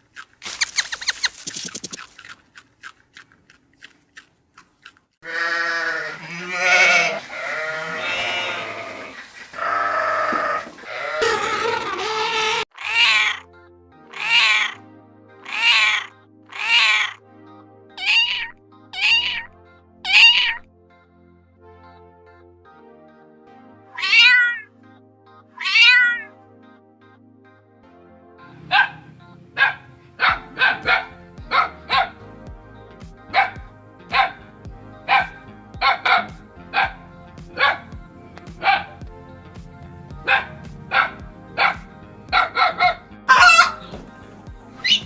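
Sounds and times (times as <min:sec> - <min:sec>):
soft background music: 0:05.3 - 0:09.1, 0:12.8 - 0:45.0
cat meowing: 0:24.0 - 0:24.7, 0:25.6 - 0:26.3.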